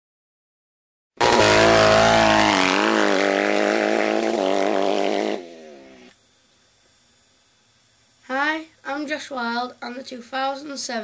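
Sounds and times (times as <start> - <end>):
dirt bike engine running: 1.2 - 9.6.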